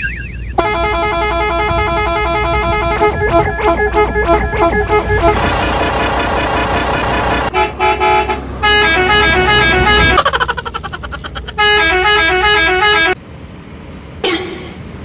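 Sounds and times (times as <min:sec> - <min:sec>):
musical vehicle horn blasts: 0:00.6 - 0:10.2, 0:11.6 - 0:13.2
rapidly pulsing horn: 0:00.6 - 0:10.2.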